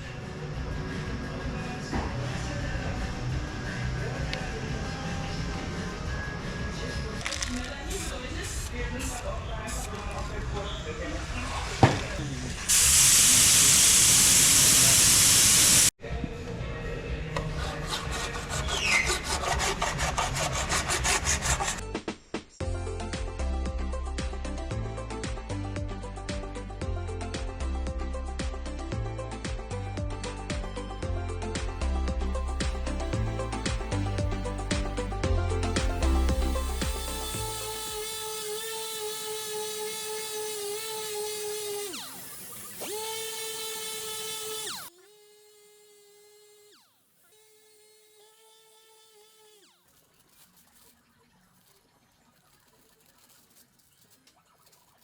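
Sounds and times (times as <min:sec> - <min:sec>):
music: 0:00.0 - 0:09.6, 0:16.0 - 0:38.4
hand scraping sheet metal: 0:17.4 - 0:21.8
rotary grinder whining: 0:32.2 - 0:51.8.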